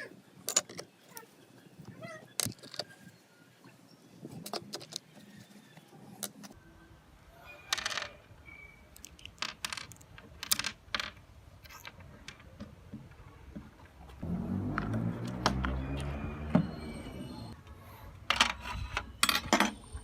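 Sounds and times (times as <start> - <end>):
small metal parts clinking: 8.9 - 12.5, 18.3 - 19.9.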